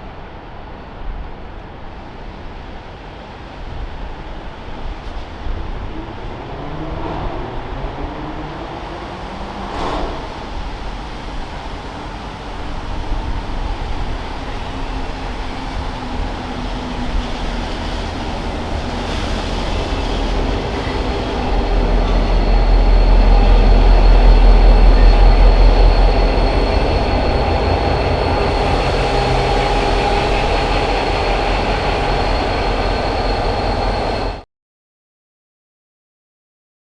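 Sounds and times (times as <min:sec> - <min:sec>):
locomotive rumble: 0:07.2 - 0:34.4
high wheel squeal: 0:14.1 - 0:34.4.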